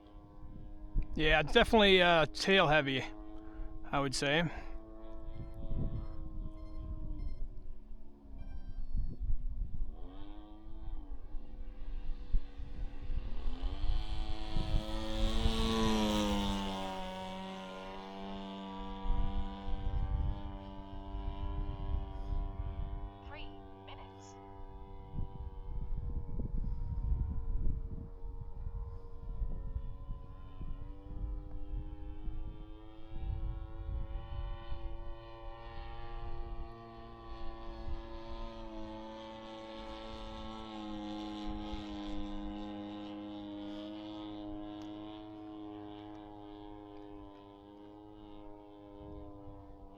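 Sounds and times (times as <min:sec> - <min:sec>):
model plane engine flying by: 0:00.0 - 0:49.9
wind rumbling on microphone: 0:05.0 - 0:17.0, 0:18.8 - 0:23.5, 0:24.6 - 0:42.8, 0:48.8 - 0:49.8.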